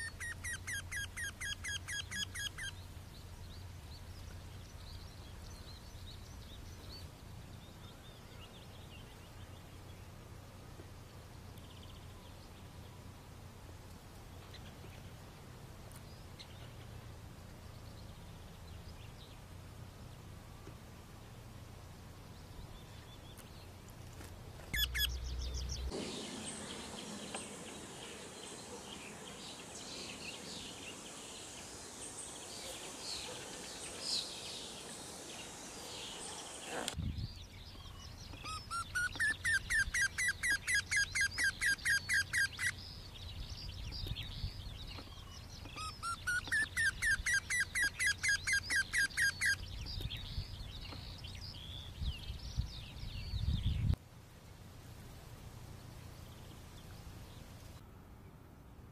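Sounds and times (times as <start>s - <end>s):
birds chirping and calling: 0.0s - 2.9s, 24.6s - 53.9s
songbird singing repeated notes: 0.0s - 13.2s, 24.6s - 54.0s
steady hiss: 19.3s - 37.0s, 54.0s - 57.8s.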